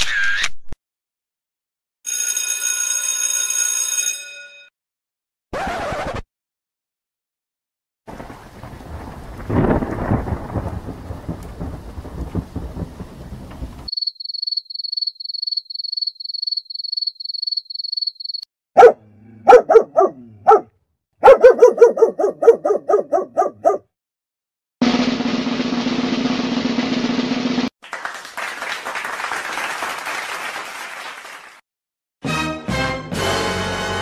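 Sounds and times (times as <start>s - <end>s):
rain: 8.1s - 13.9s
thunder rumbling: 8.1s - 13.9s
crickets chirping: 13.9s - 18.5s
dog barking: 18.8s - 23.9s
drumroll: 24.8s - 27.7s.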